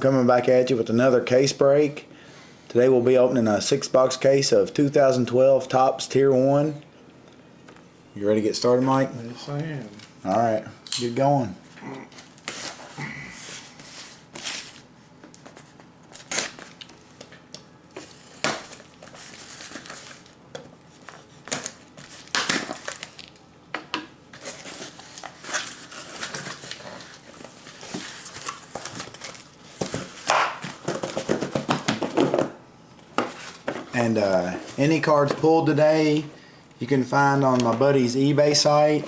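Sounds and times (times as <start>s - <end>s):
plastic wrap crinkling and tearing: 16.0s - 17.2s, 18.0s - 23.4s, 24.4s - 30.3s.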